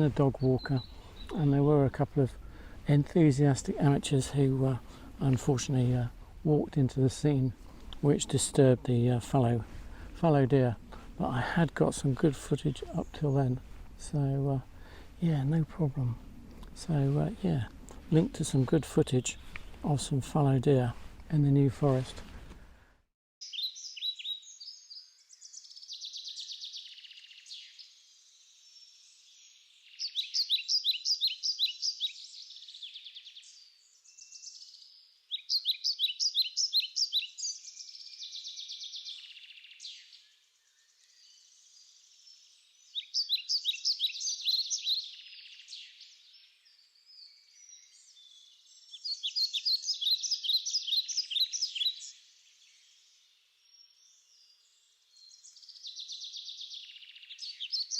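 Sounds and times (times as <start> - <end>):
soft bird chirps: 0.0 - 2.4, 23.4 - 57.9
songbird singing: 0.0 - 22.4, 23.4 - 57.9.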